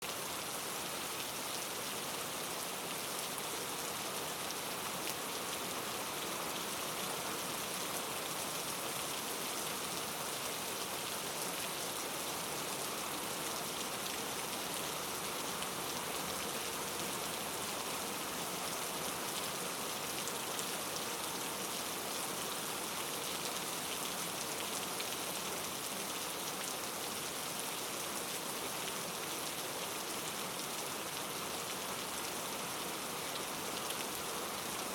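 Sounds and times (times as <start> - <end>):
patter of raindrops: 0.0 - 34.9
steady rain hissing: 0.0 - 34.9.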